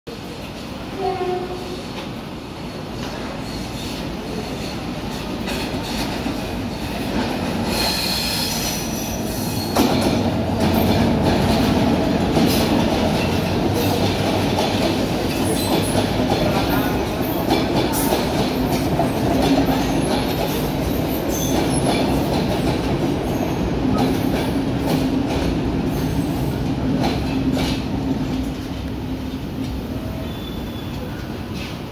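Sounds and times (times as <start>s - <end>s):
train rumble: 0.1s - 31.9s
high squeal: 30.2s - 31.2s.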